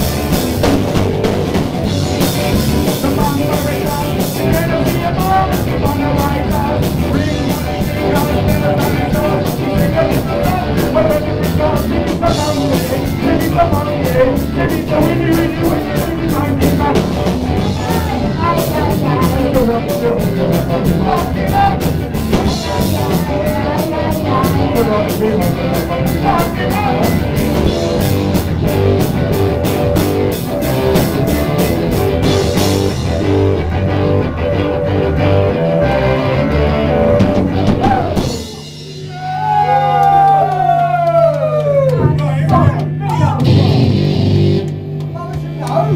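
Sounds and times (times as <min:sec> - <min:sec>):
drum kit: 0:00.0 - 0:41.0, 0:41.9 - 0:45.9
guitar: 0:00.0 - 0:45.9
person singing: 0:02.8 - 0:28.3.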